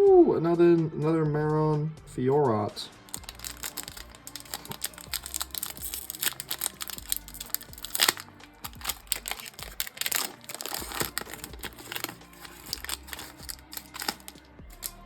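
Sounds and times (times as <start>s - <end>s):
trading cards rustling: 3.0s - 15.0s.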